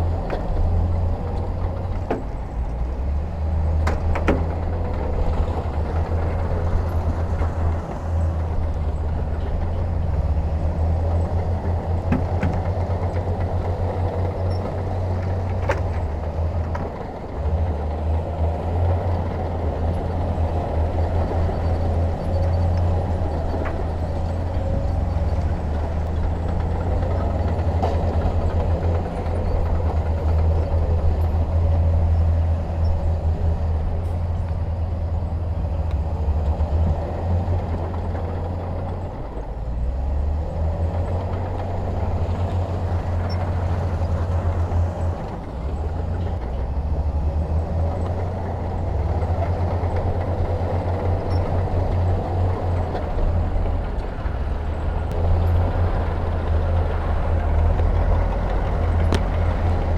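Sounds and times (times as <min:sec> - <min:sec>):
diesel engine rumble: 0:00.0 - 0:59.9
faint metal clanks: 0:00.2 - 0:06.0, 0:11.3 - 0:13.6, 0:14.2 - 0:17.1.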